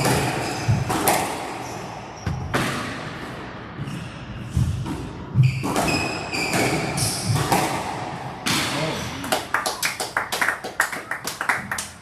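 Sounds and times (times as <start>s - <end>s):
squash ball smacking: 0.0s - 1.5s, 4.6s - 8.8s.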